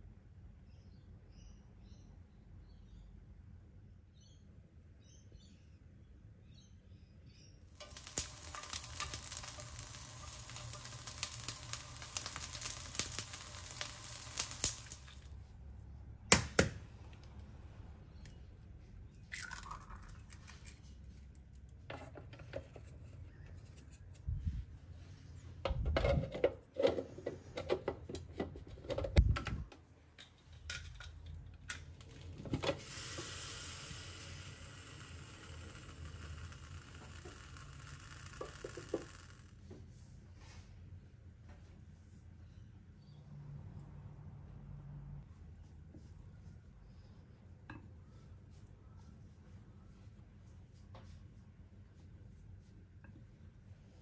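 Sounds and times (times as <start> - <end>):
crackling hiss with clicks: 7.7 - 15.4, 31.7 - 39.8
egg cooker steaming hiss: 7.7 - 15.4, 32.6 - 39.6
eggshells cracking: 7.7 - 15.4, 19.2 - 20.8, 34.2 - 39.6.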